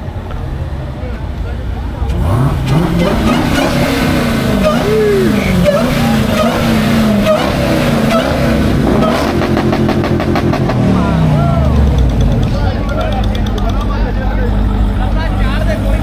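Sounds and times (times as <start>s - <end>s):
car engines revving: 0.0s - 16.0s
people talking: 0.0s - 16.0s
fast pulsing exhaust note: 2.0s - 16.0s.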